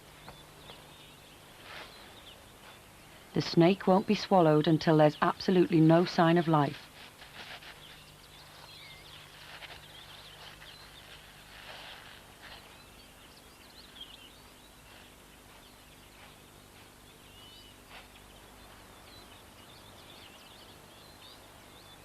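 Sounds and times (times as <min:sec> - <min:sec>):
small birds chirping: 0:00.0 - 0:22.0
soft rustles: 0:01.5 - 0:02.8, 0:06.7 - 0:13.1.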